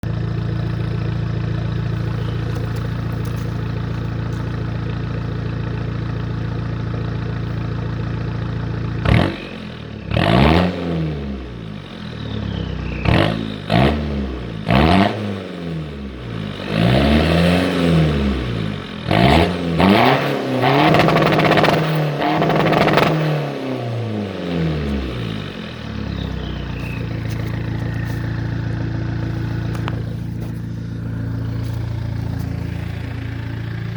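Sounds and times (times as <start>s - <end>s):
diesel engine revving: 0.0s - 33.9s
high turbo whistle: 26.6s - 29.8s.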